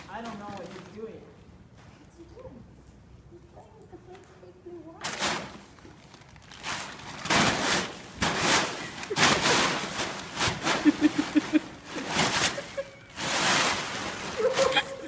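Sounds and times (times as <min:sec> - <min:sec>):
plastic tarp crinkling and rustling: 0:00.0 - 0:01.4, 0:05.0 - 0:15.0.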